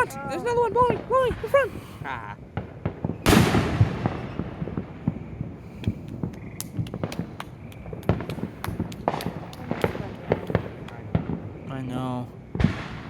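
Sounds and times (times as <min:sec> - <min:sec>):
firework pops and cracks: 0:02.5 - 0:13.0
loud firework bang: 0:02.6 - 0:13.0.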